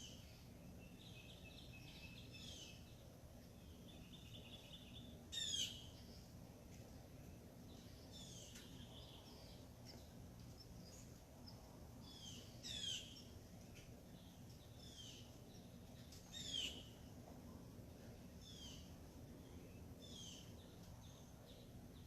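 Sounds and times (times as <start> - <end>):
birds calling: 0.0 - 6.4, 7.3 - 17.2
faint low hum: 0.0 - 22.0
faint bird chirps: 3.6 - 6.3, 14.1 - 17.0.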